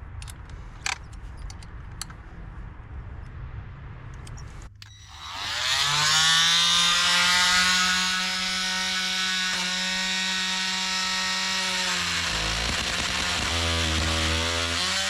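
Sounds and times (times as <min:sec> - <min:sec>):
blade cutting wood: 0:04.8 - 0:15.0
oscillating multi-tool buzzing: 0:04.8 - 0:15.0.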